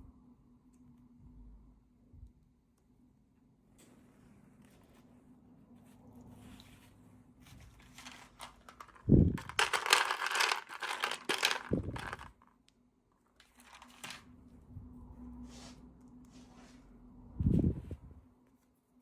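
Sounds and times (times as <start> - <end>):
plastic packaging crinkling: 7.6 - 12.5, 13.4 - 14.3.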